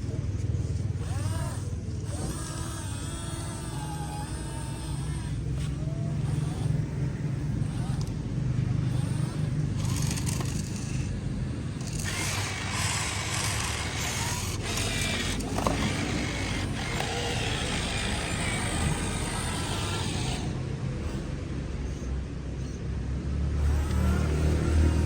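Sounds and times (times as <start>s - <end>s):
small motors whirring and grinding: 0.0s - 22.8s, 23.4s - 25.0s.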